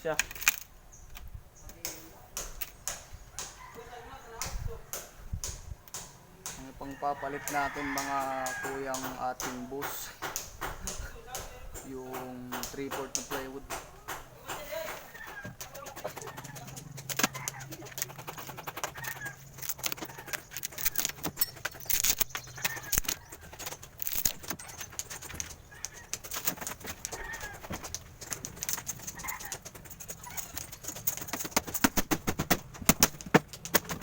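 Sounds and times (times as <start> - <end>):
birds chirping: 0.0 - 34.0
wood and tools clattering: 7.7 - 34.0.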